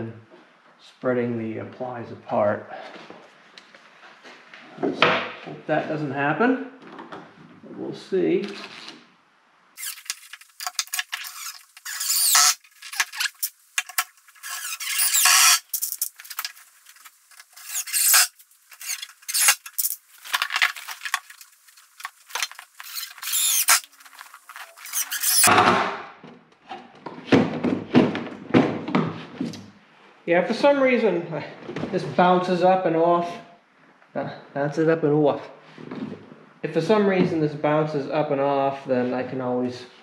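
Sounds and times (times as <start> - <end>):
cordless drill squealing: 9.8 - 10.2, 11.2 - 13.5, 14.4 - 15.9, 17.6 - 19.9, 22.8 - 23.9, 24.8 - 25.5.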